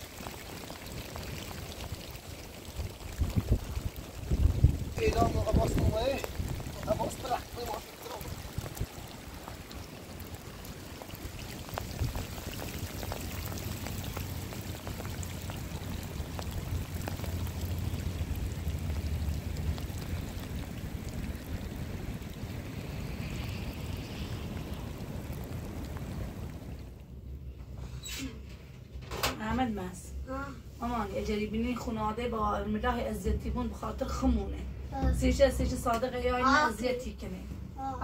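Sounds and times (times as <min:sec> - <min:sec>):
raindrops tapping: 0:00.0 - 0:27.1
steady rain hiss: 0:00.0 - 0:38.0.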